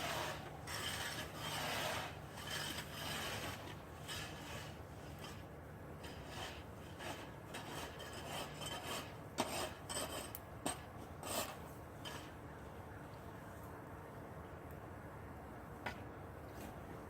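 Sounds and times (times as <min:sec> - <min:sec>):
ice being scraped: 0:00.0 - 0:12.3.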